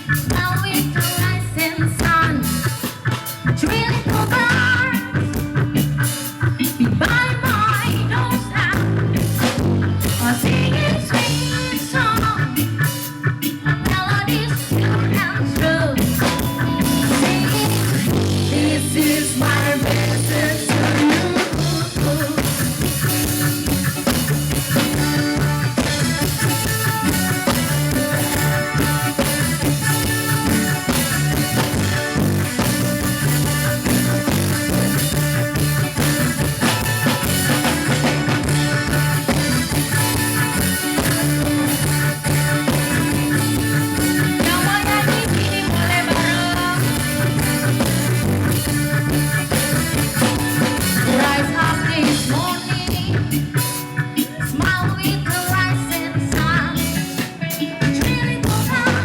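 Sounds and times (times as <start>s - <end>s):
band playing reggae song: 0.0s - 59.0s
person singing: 3.6s - 5.2s, 10.1s - 13.0s, 13.8s - 23.0s, 44.2s - 47.6s, 51.0s - 53.5s, 54.2s - 59.0s.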